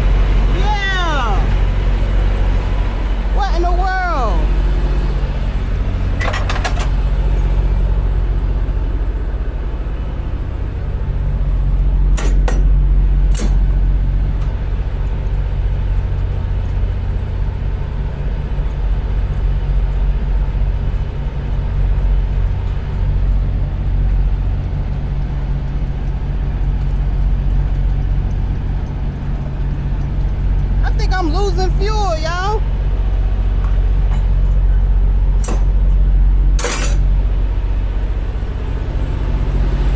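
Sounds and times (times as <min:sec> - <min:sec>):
truck diesel engine droning: 0:00.0 - 0:39.9.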